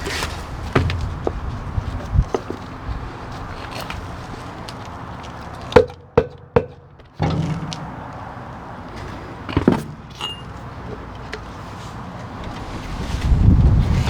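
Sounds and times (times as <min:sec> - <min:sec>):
rough handling noise: 0:00.0 - 0:05.8, 0:07.0 - 0:14.0
sharp metal knocks: 0:05.8 - 0:10.6.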